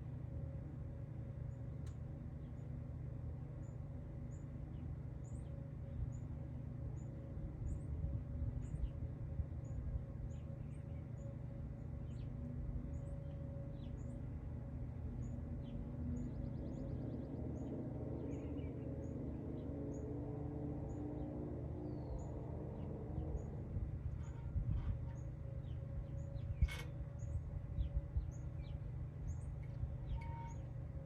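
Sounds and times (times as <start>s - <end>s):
steady low hum: 0.0s - 31.0s
small birds chirping: 15.2s - 20.0s.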